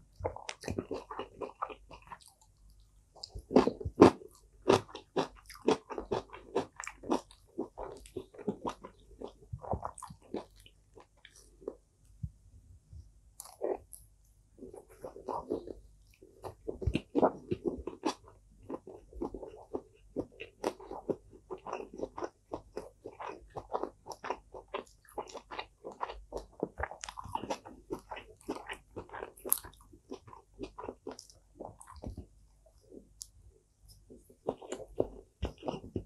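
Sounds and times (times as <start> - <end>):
person chewing crunchy food: 0.0 - 11.9, 13.4 - 36.0.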